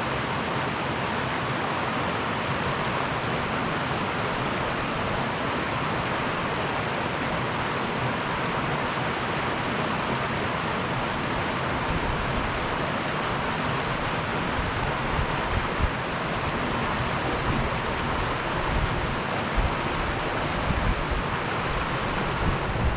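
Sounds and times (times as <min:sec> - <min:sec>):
river water rushing: 0:00.0 - 0:22.9
low rumbles: 0:14.6 - 0:21.2.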